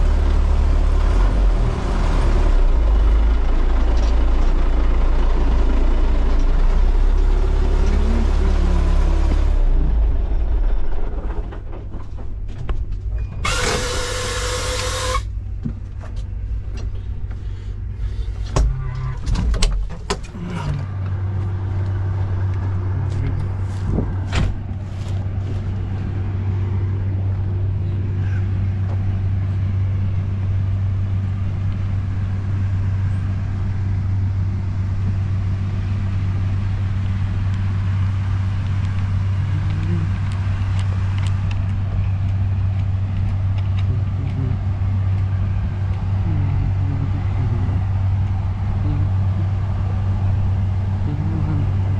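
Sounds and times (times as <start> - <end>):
heavy engine running: 0.0 - 51.9
knocks and clatters: 10.7 - 13.5
loud hiss: 13.4 - 15.3.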